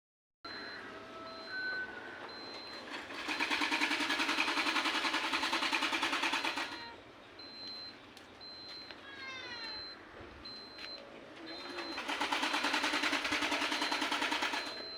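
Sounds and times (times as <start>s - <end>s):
faint short high beeps: 0.5s - 2.8s
two-stroke motorcycle engine: 2.9s - 6.8s, 11.6s - 14.9s.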